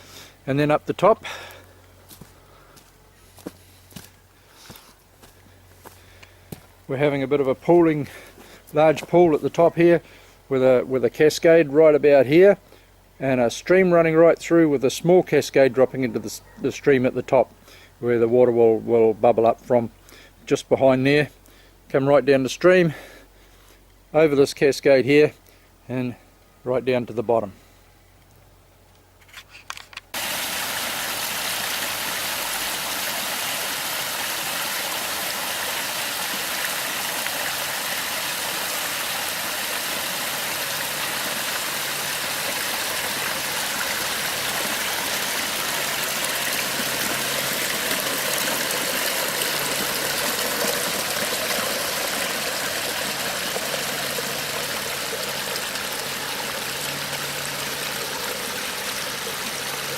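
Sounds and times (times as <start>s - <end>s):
water splashing down rocks: 30.2s - 59.9s.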